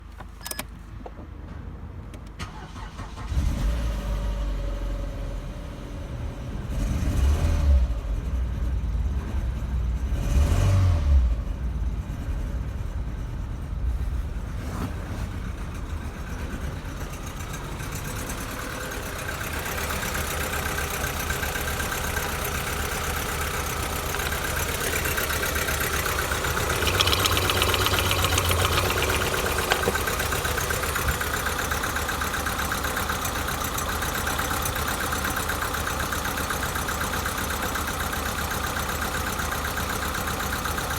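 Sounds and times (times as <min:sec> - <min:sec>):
car engine starting and revving: 0:02.4 - 0:05.4, 0:10.0 - 0:11.6
car engine idling: 0:15.5 - 0:40.9.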